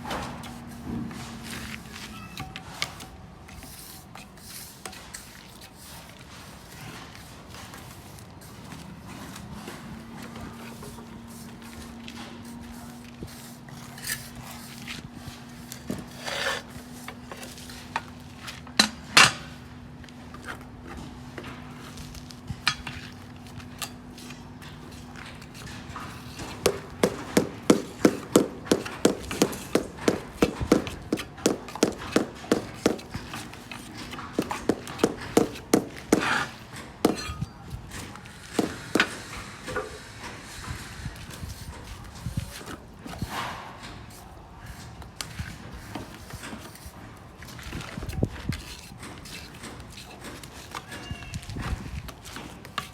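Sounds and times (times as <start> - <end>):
scattered knocks: 26.6 - 33.3.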